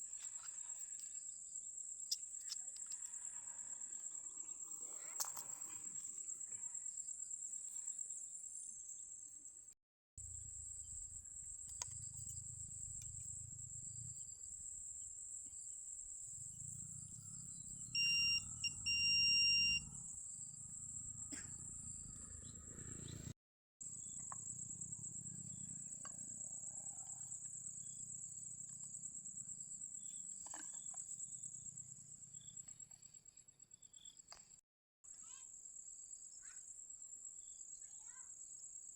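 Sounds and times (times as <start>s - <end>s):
night insects trilling: 0.0s - 23.1s, 23.9s - 34.3s
metal detector beeps: 17.9s - 19.9s.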